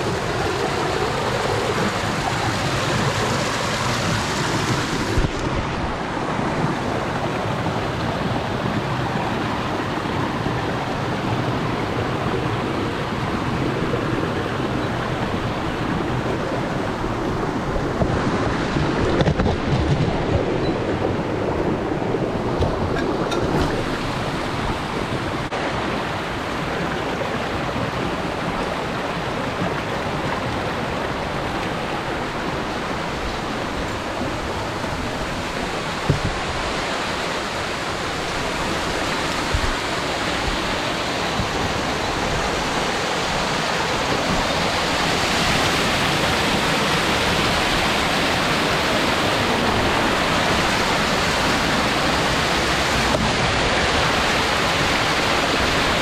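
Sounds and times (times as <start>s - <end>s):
waterfall rushing: 0.0s - 19.2s, 20.4s - 56.0s.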